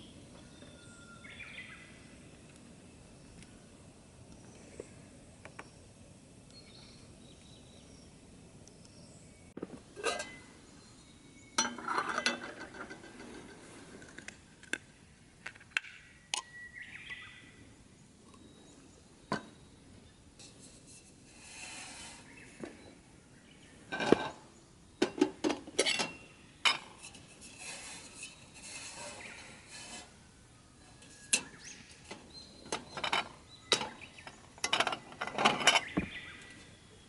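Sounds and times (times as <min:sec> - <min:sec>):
cookware clinking and knocking: 0:10.0 - 0:10.4, 0:11.6 - 0:13.1, 0:25.0 - 0:26.9.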